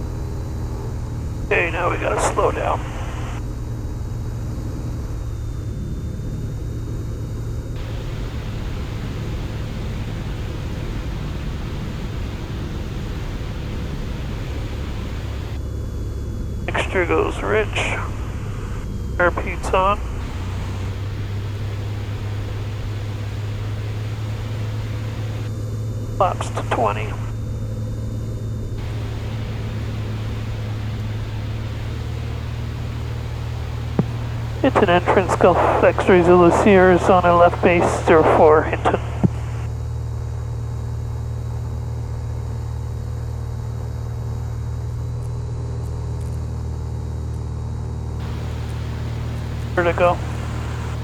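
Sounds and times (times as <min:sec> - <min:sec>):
light aircraft engine droning: 0:00.0 - 0:05.9, 0:07.7 - 0:15.8, 0:19.4 - 0:25.5, 0:28.8 - 0:40.1, 0:48.2 - 0:51.0.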